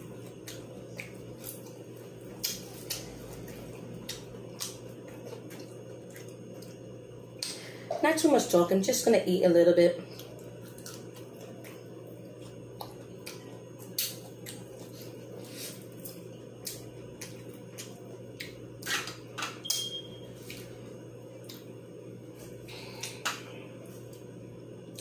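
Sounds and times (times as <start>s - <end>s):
steady low hum: 0.0s - 25.0s
chewing: 0.1s - 6.9s, 10.1s - 18.6s.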